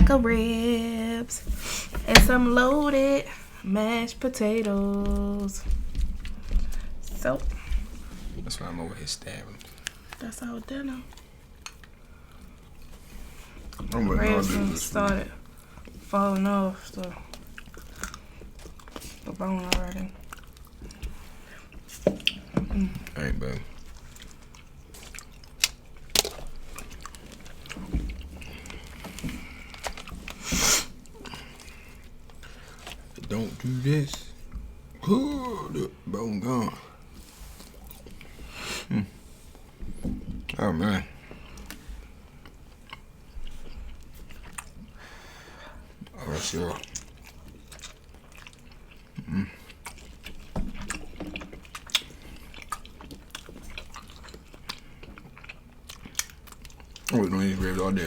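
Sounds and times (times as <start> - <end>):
low thump: 2.0 - 2.6
biting and chewing: 16.8 - 35.0, 39.7 - 45.0, 45.9 - 58.0.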